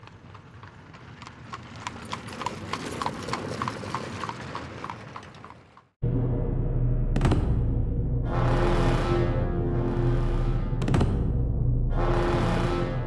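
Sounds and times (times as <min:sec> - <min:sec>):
hollow clicks like hoofbeats: 0:00.0 - 0:05.9
loud dark music: 0:06.0 - 0:13.0.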